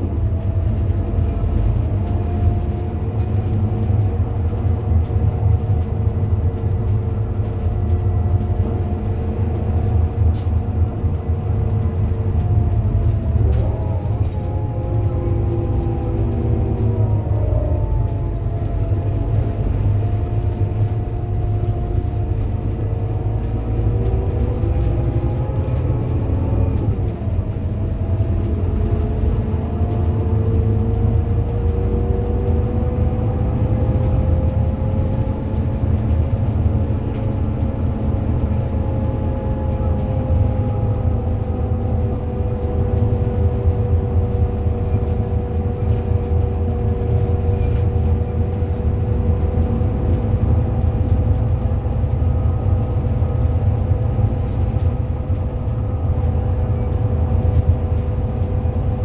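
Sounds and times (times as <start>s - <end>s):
bus engine rumbling: 0.0s - 59.0s.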